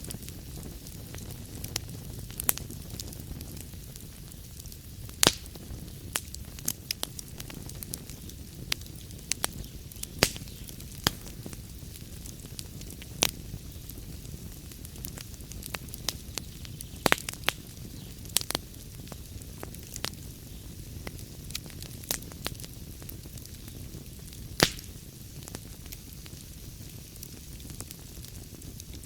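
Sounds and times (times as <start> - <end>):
low rumble of flame: 0.0 - 29.0
wood fire crackling and popping: 0.0 - 29.0.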